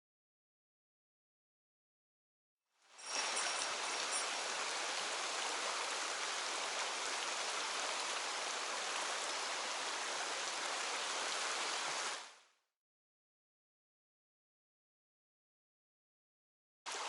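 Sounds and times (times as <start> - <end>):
stream water rushing: 2.9 - 12.5.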